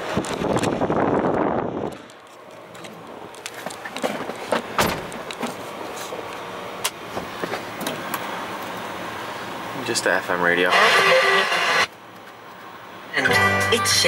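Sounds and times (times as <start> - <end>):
loud whirring noise: 4.7 - 14.0.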